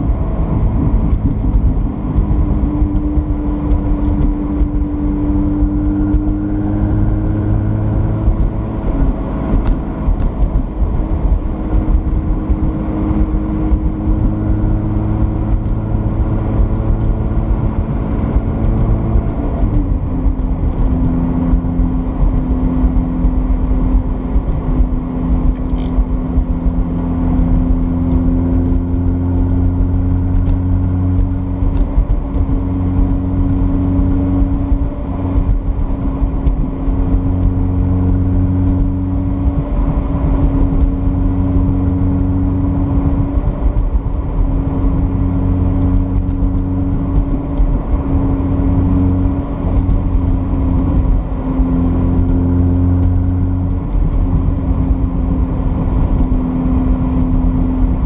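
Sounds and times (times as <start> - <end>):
car engine droning: 0.0 - 58.0
road and tyre noise: 0.0 - 58.0.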